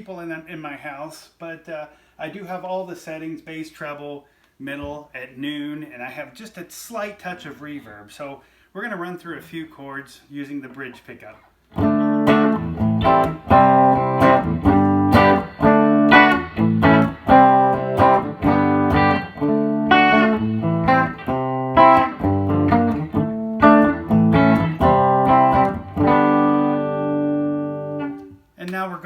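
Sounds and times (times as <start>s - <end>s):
clean electric guitar chords: 11.7s - 28.4s.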